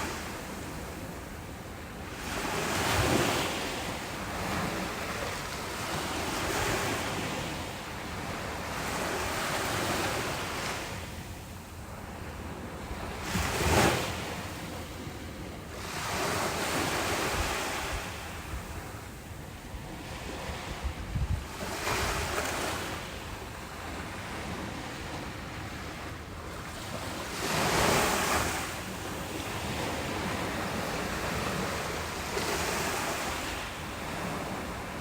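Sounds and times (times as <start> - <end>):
ocean surf breaking on beach: 0.0 - 35.0.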